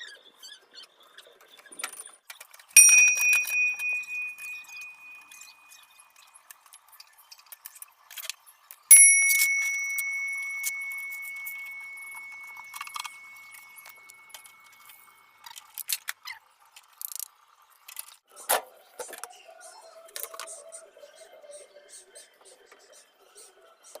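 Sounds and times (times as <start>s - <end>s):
struck metal ringing: 2.8s - 5.3s, 8.9s - 14.2s.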